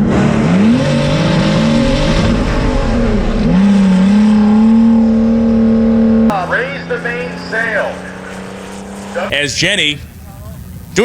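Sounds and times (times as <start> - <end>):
car engine accelerating hard: 0.0 - 9.4.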